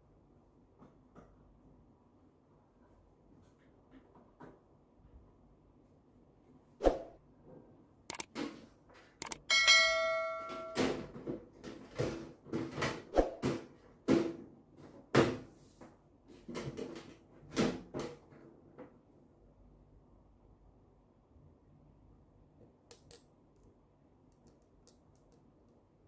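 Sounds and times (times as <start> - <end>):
tools knocking and clicking: 8.1 - 8.4
metal struck ringing: 9.5 - 10.9.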